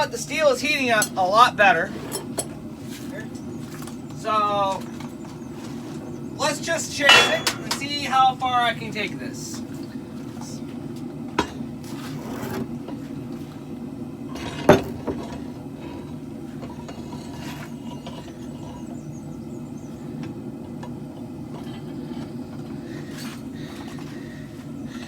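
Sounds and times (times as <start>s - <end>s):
forge running steady noise: 0.0s - 25.0s
sharp knocks: 7.1s - 8.0s.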